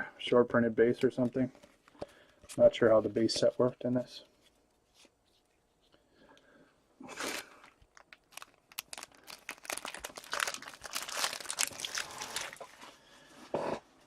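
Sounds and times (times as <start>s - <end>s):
plastic wrapping crinkling: 7.2s - 12.8s.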